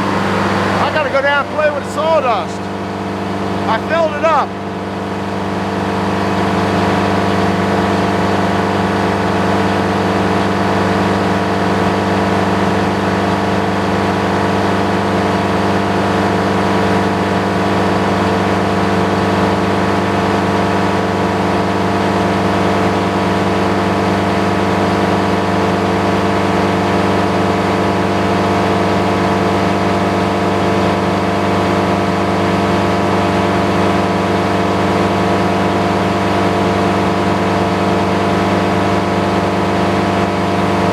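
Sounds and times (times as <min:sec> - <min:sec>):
sawmill engine running: 0:00.0 - 0:10.8.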